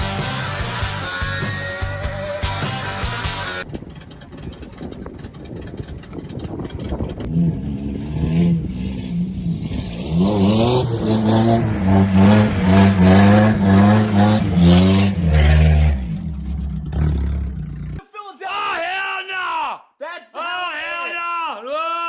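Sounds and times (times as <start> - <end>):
truck engine revving hard: 2.5 - 18.0.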